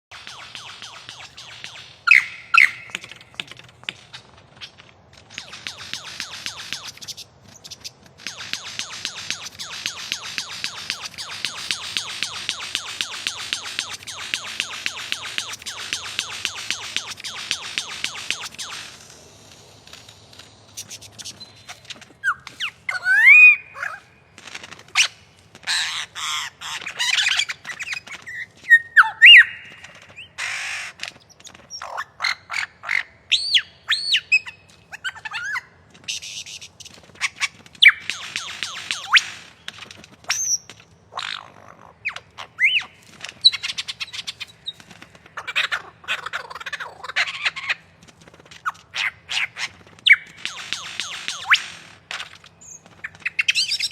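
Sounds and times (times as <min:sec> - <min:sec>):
lyrebird singing mimicry song: 0:00.1 - 0:03.5, 0:08.4 - 0:18.8, 0:20.8 - 0:24.1, 0:25.8 - 0:30.7, 0:31.4 - 0:36.6, 0:37.2 - 0:39.4, 0:40.3 - 0:44.8, 0:52.6 - 0:53.9.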